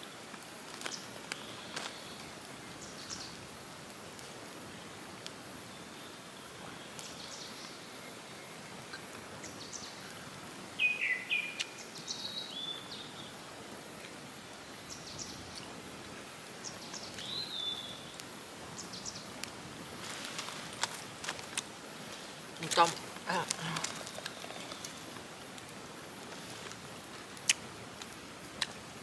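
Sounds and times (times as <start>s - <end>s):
steady outdoor hiss: 0.0s - 29.0s
wild birds chirping: 5.6s - 15.8s, 16.6s - 19.4s, 20.2s - 27.7s.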